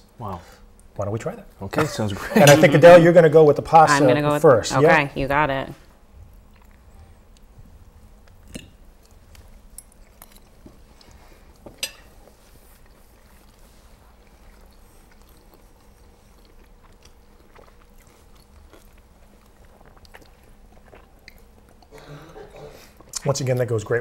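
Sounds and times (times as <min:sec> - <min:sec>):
steady low hum: 0:00.0 - 0:24.0
people chewing food: 0:06.0 - 0:24.0.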